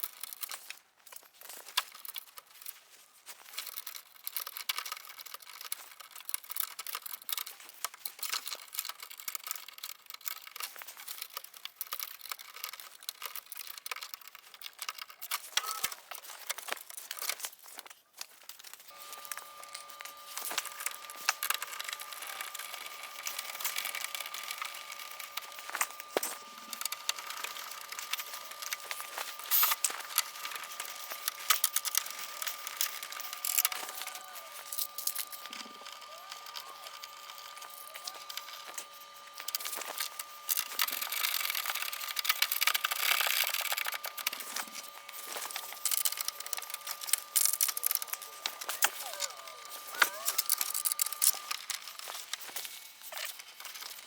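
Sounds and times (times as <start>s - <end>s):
crinkling and crackling handling: 0.0s - 54.0s
steady high hum: 18.9s - 54.0s.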